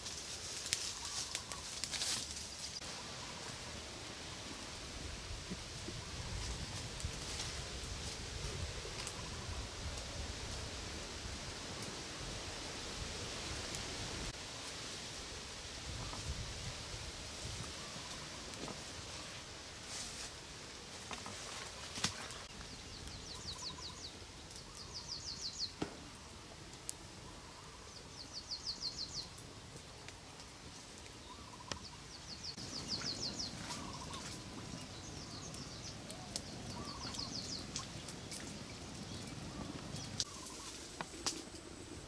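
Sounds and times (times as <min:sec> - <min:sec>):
faint bird calls: 0:00.8 - 0:01.8, 0:21.5 - 0:26.5, 0:27.1 - 0:29.4, 0:31.2 - 0:41.4.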